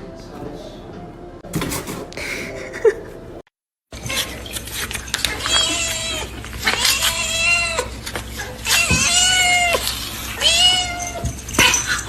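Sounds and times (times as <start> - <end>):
cat meowing: 5.3 - 12.0.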